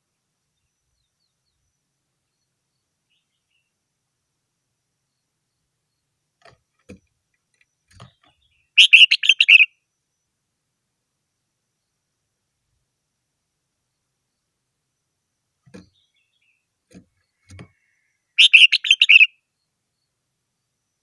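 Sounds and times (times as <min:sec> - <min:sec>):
bird song burst: 0:07.6 - 0:10.3, 0:15.8 - 0:20.2.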